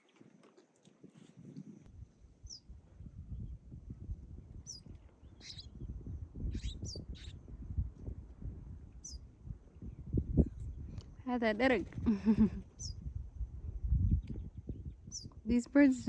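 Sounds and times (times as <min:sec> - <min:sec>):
birds chirping: 0:02.4 - 0:02.7, 0:03.3 - 0:07.7, 0:08.8 - 0:16.0.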